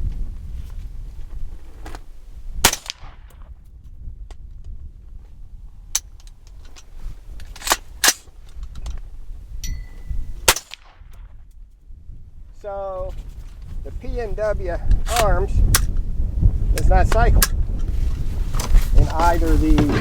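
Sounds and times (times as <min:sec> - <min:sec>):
low wind rumble: 0:00.0 - 0:20.0
rifle shots cracking: 0:02.6 - 0:03.3, 0:10.4 - 0:11.0.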